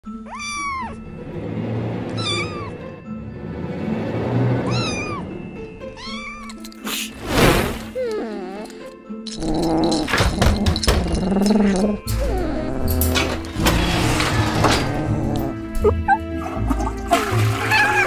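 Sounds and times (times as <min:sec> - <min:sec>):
background music: 0:00.0 - 0:18.0
cat meowing: 0:00.1 - 0:01.0, 0:02.1 - 0:02.9, 0:04.7 - 0:06.6.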